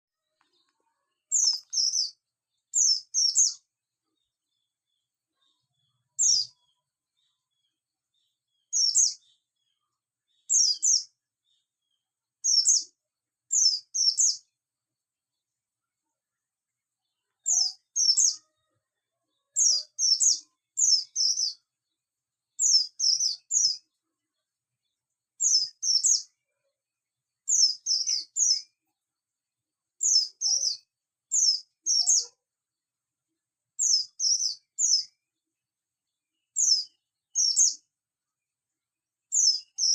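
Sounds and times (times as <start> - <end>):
bird chirping high: 0.5 - 3.7, 5.5 - 7.7, 8.6 - 9.4, 10.4 - 11.1, 17.4 - 18.6, 19.6 - 21.6, 27.5 - 28.7, 30.0 - 32.4, 33.8 - 35.1, 36.6 - 37.8, 39.3 - 39.9.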